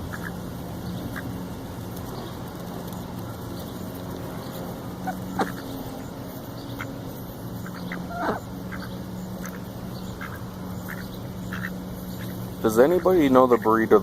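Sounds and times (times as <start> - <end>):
ducks quacking: 0.0 - 1.4, 4.9 - 14.0
steady low hum: 0.0 - 14.0
faint short duck calls: 5.0 - 5.6.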